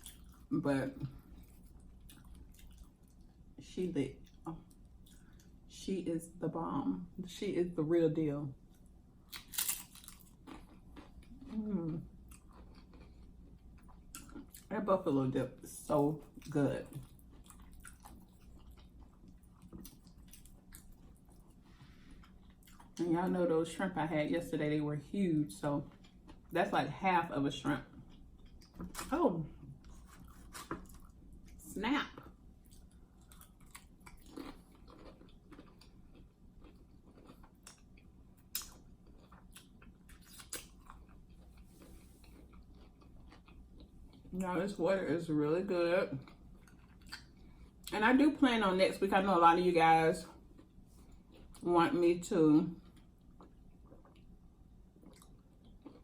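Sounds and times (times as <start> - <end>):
faint chewing: 0.0 - 3.4, 4.2 - 5.6, 8.7 - 14.7, 16.2 - 23.0, 27.8 - 44.4, 46.1 - 47.9, 50.3 - 51.6, 52.7 - 56.0.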